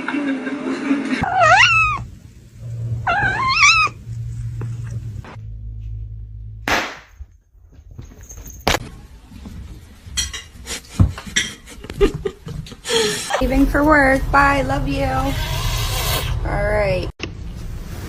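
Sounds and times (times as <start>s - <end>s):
cat meowing: 1.2s - 2.1s, 3.0s - 4.0s.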